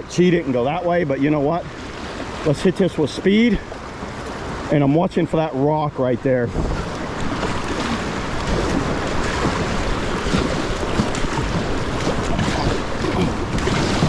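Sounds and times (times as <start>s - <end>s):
kayak paddling: 0.0s - 14.0s
rushing river rapids: 0.0s - 14.0s
wind buffeting microphone: 6.2s - 14.0s.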